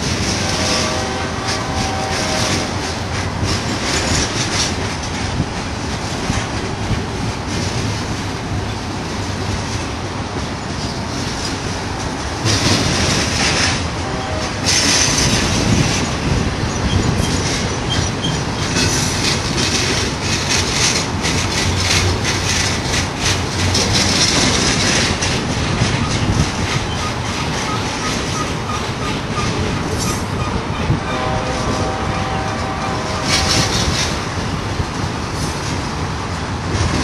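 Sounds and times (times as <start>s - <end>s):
train wheels clicking over rails: 0.0s - 37.0s
high hiss of wheels on rail: 31.2s - 36.3s.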